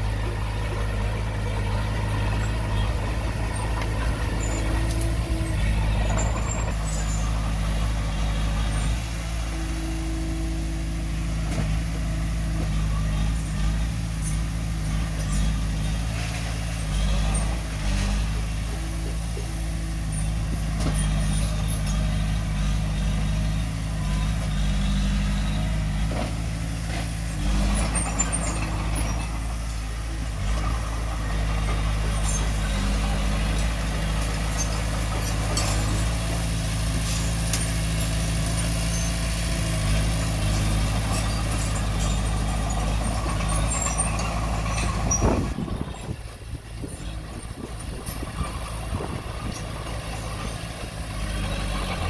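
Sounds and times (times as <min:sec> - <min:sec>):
diesel engine running: 0:00.0 - 0:52.0
clicks and clanks: 0:33.6 - 0:36.2.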